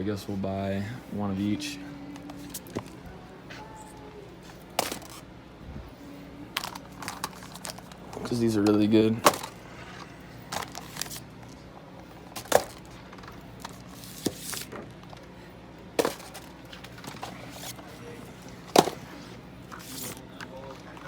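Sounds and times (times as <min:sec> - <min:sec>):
low steady hum: 0:00.0 - 0:21.0
boxes knocking and clunking: 0:04.6 - 0:05.2, 0:06.6 - 0:09.6, 0:10.5 - 0:11.2, 0:12.2 - 0:14.9, 0:16.0 - 0:17.9, 0:18.6 - 0:19.2.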